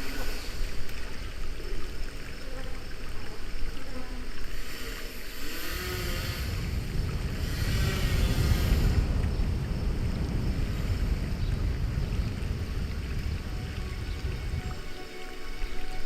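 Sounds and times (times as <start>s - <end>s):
rushing water churning: 0.0s - 16.0s
heavy low rumble: 6.3s - 15.5s.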